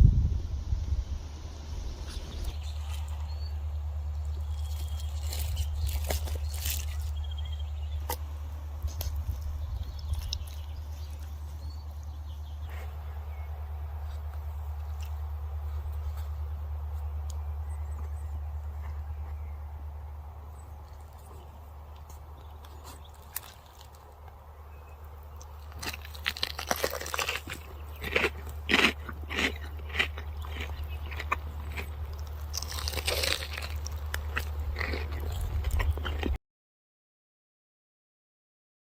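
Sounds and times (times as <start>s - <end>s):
low rumble: 0.0s - 21.1s
bird chirps: 2.0s - 8.2s
crunchy food being chewed: 2.0s - 36.4s
crisp crackles and clicks: 4.1s - 7.4s, 8.0s - 11.7s, 21.9s - 24.4s, 25.2s - 36.4s.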